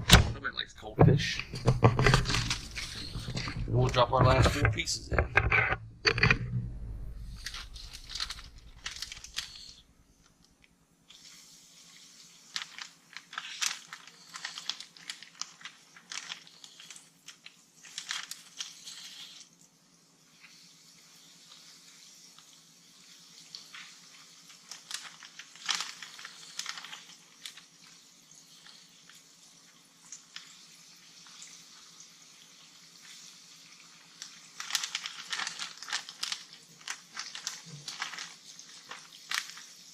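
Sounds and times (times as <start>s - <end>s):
oil crackling and popping: 1.2s - 39.9s
fish sizzling in hot oil: 11.1s - 39.9s.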